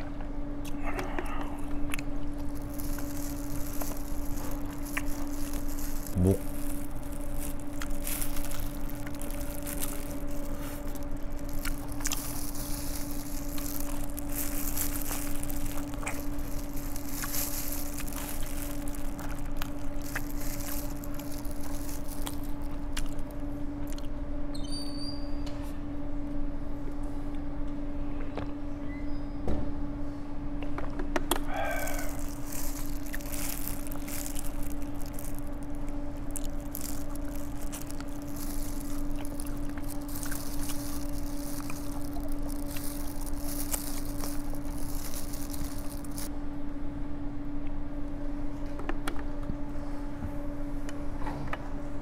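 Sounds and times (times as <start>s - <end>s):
steady electrical hum: 0.0s - 52.0s
person chewing and biting food: 0.6s - 24.1s, 31.3s - 46.3s
plastic glove crinkling: 1.6s - 23.5s, 31.4s - 46.3s.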